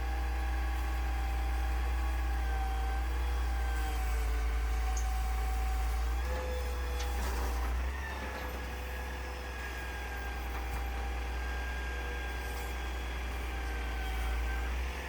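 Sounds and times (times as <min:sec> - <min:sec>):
truck engine rumbling and whining: 0:00.0 - 0:15.0.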